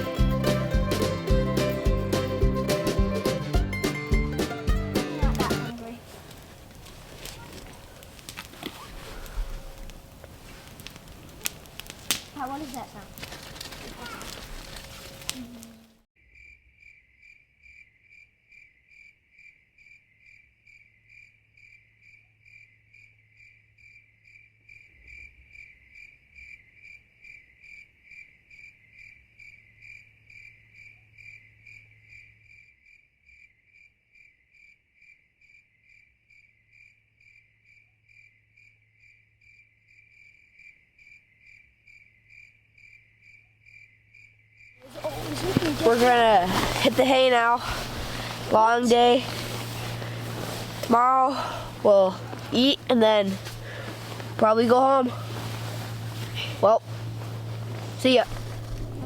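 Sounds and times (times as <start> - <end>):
cricket chirping: 12.8 - 59.0.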